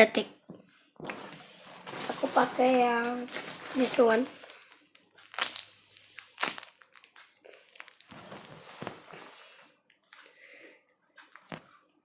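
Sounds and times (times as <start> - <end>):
toy crinkling and rustling: 1.2 - 9.6.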